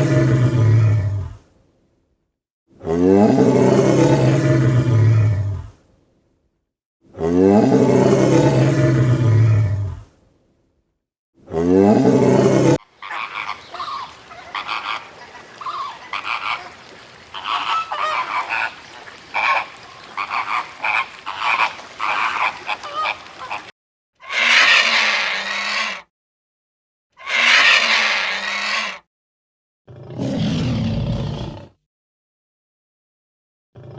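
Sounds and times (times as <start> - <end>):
loud rough animal call: 11.6 - 23.7
short animal calls: 12.8 - 26.0
animal call with sliding pitch: 12.9 - 23.7.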